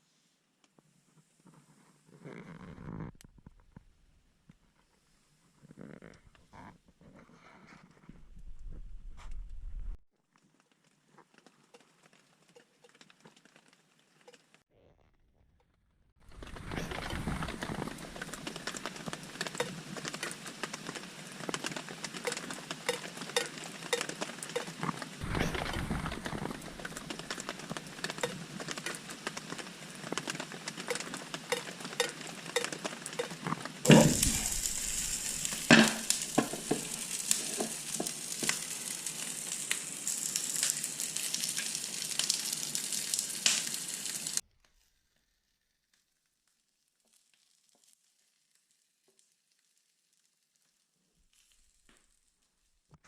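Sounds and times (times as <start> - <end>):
campfire crackling and popping: 16.3 - 44.4.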